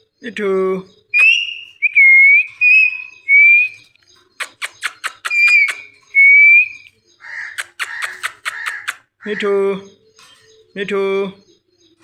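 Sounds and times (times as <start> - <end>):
parrot whistling: 1.2 - 3.8, 4.4 - 9.0
parrot sharp clicks: 4.4 - 5.9, 7.5 - 9.0.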